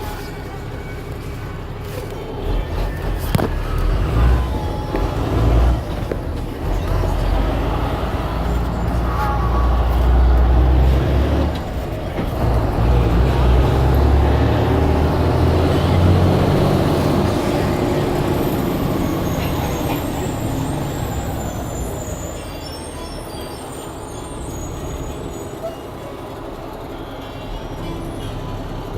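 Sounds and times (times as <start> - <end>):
bus engine running under load: 0.0 - 28.9.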